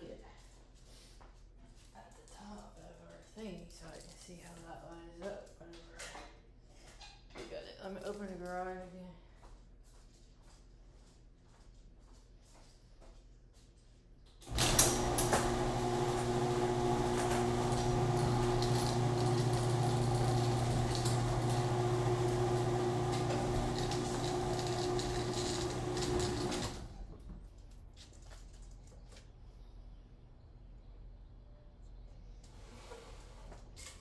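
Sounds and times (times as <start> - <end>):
garage door opener running: 14.4 - 27.4.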